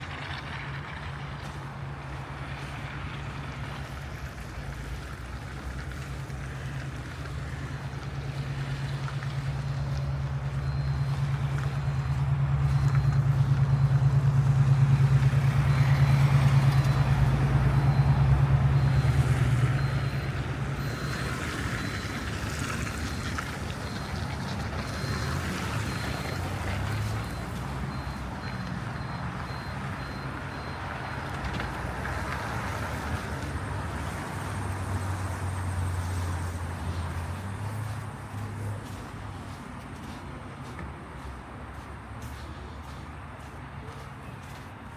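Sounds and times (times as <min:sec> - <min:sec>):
heavy vehicle engine running: 0:00.0 - 0:44.9
traffic noise: 0:00.0 - 0:44.9
faint high beep: 0:10.5 - 0:14.1.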